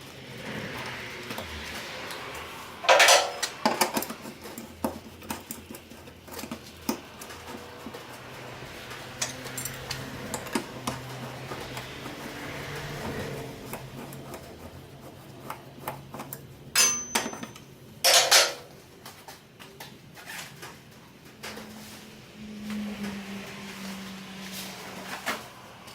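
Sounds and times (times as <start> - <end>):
metal tools clinking and knocking: 2.8 - 3.9, 9.2 - 10.5, 16.8 - 18.7.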